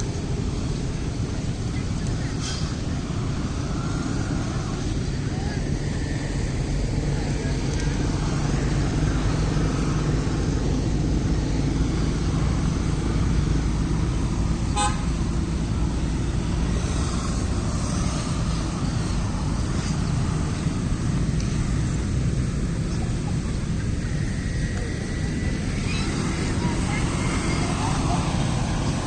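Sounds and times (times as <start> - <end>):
street traffic rumble: 0.0 - 29.0
car horn toot: 14.7 - 15.2.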